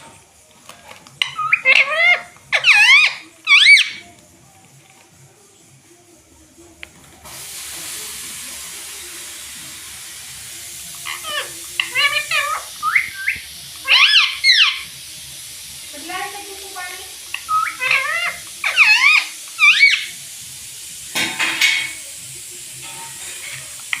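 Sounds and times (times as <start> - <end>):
steady hiss: 0.0 - 24.0
parakeet calls: 1.2 - 4.1, 11.0 - 15.0, 16.0 - 20.3.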